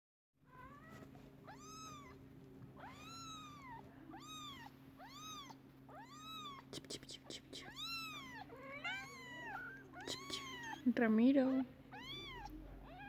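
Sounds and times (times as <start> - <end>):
faint low hum: 0.4 - 13.0
cat meowing: 0.5 - 2.2, 2.8 - 6.7, 7.6 - 10.9, 11.9 - 13.0.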